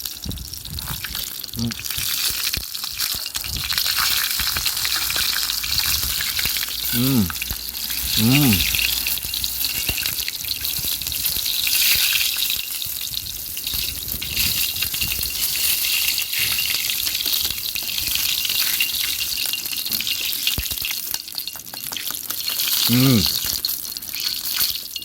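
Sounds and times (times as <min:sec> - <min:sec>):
campfire crackles: 0:00.0 - 0:25.0
chicken sizzling in a pan: 0:00.0 - 0:25.0.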